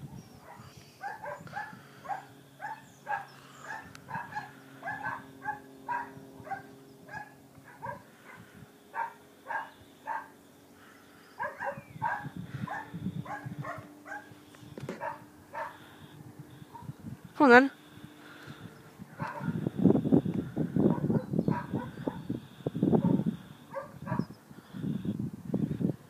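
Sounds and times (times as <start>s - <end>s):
dog barking: 0.4s - 8.4s, 9.0s - 10.3s, 11.4s - 14.3s, 15.0s - 15.9s, 19.2s - 19.6s, 20.9s - 22.2s, 23.0s - 24.3s.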